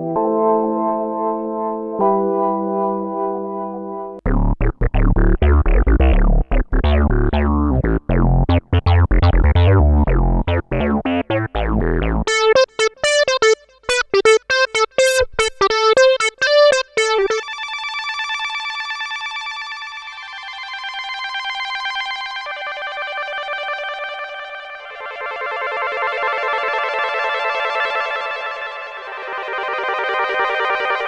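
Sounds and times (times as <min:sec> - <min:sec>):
synthesizer held chord: 0:00.0 - 0:17.6
staccato plucked synthesizer pattern: 0:04.2 - 0:17.4
synthesizer plucked bass line: 0:04.2 - 0:17.5.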